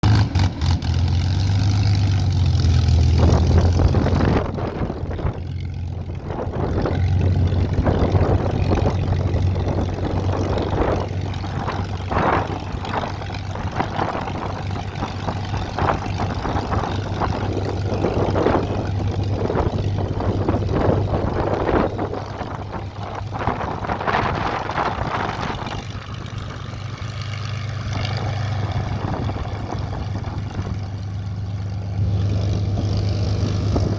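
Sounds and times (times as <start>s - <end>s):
propeller aircraft engine droning: 0.0s - 33.9s.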